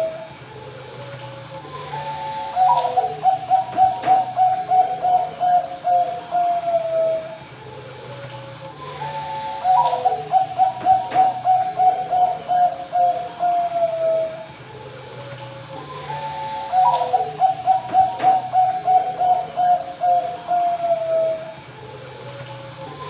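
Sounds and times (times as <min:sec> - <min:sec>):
dove cooing: 0:00.0 - 0:07.4, 0:08.1 - 0:23.0.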